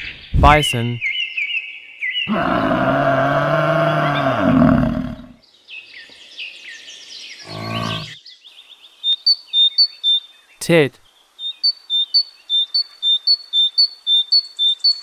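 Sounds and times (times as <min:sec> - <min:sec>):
small birds chirping: 0:00.0 - 0:15.0
bison bellowing: 0:02.3 - 0:05.4, 0:07.5 - 0:08.2.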